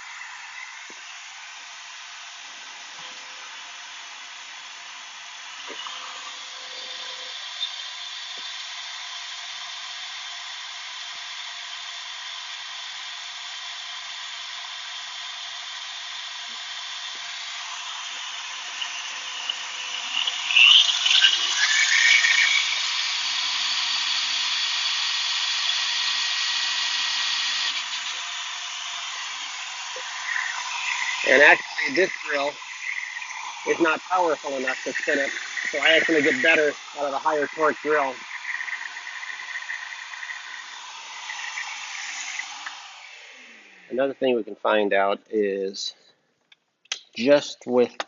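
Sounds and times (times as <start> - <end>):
electric drill motor whine: 0.0 - 44.4
propeller air rush: 27.9 - 44.4.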